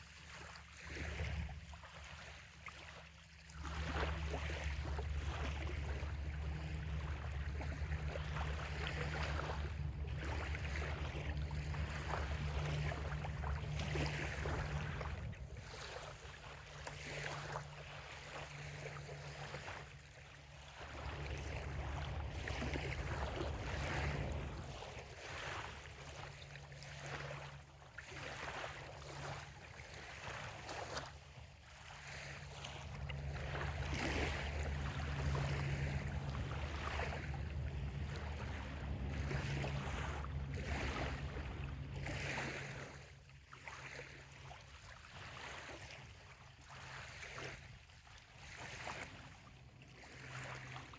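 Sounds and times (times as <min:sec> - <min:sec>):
small waves lapping on shore: 0:00.0 - 0:50.9
low rumble: 0:04.7 - 0:15.6, 0:20.7 - 0:26.3, 0:32.8 - 0:42.9.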